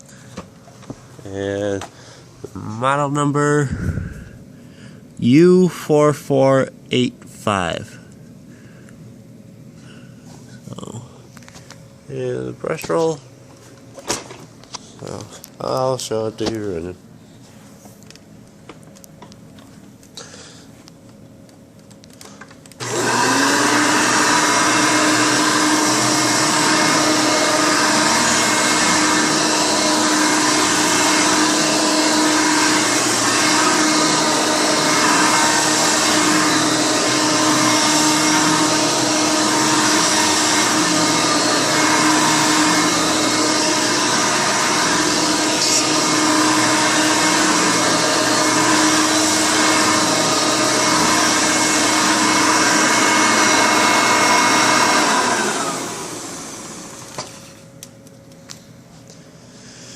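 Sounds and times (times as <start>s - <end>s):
vacuum cleaner motor running: 22.8s - 57.6s.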